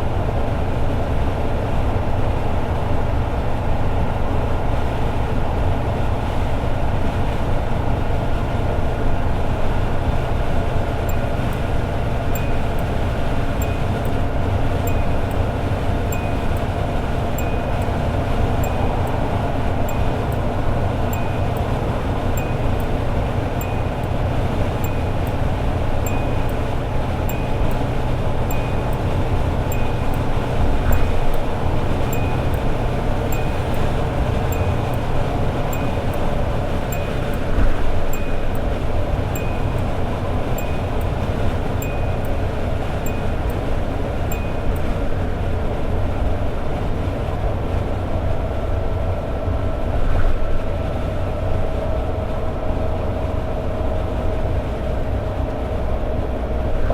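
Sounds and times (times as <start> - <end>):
car engine cruising: 0.0 - 56.9
road and tyre noise: 0.0 - 56.9
high tick or chime: 11.0 - 45.2.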